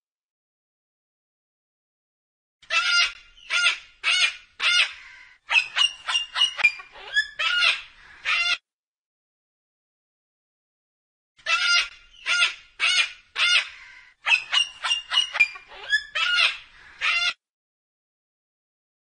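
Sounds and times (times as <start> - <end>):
cockatoo squawking: 2.6 - 8.6, 11.4 - 17.4.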